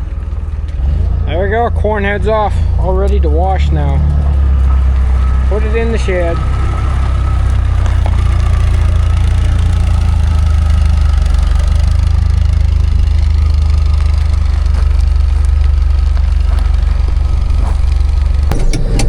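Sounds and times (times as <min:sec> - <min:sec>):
farm machinery engine humming: 0:00.0 - 0:19.0.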